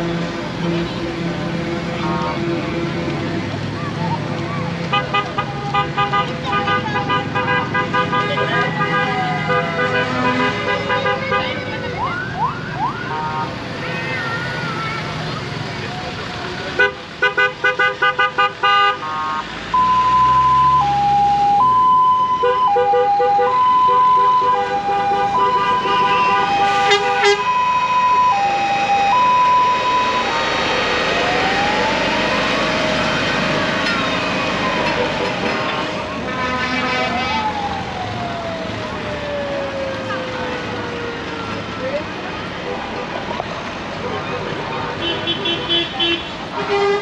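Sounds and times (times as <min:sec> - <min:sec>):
lorry air horns: 0:04.9 - 0:11.5, 0:22.4 - 0:27.5, 0:34.8 - 0:37.3
emergency vehicle siren: 0:08.3 - 0:16.0, 0:19.0 - 0:43.5.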